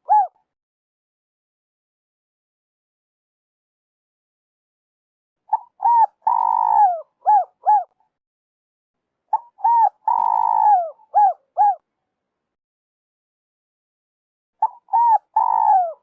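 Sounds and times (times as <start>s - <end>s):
dove cooing: 0.0s - 0.4s, 5.5s - 7.9s, 9.3s - 11.8s, 14.6s - 16.0s.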